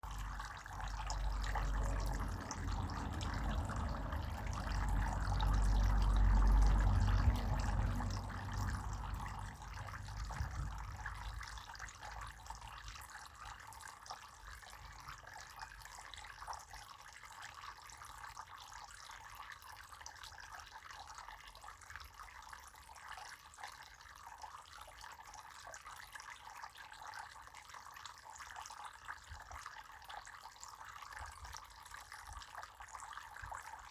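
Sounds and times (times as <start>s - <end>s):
low rumble: 0.0s - 12.8s
water running: 0.0s - 12.9s.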